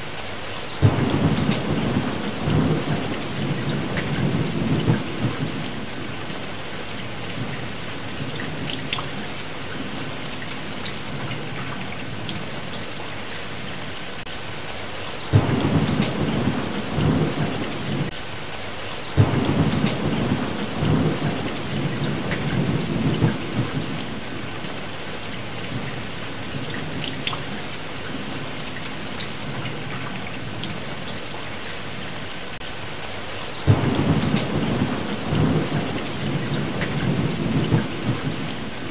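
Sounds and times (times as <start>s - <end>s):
steady rain: 0.0s - 38.9s
thunder rolling: 15.3s - 18.1s, 33.7s - 38.7s.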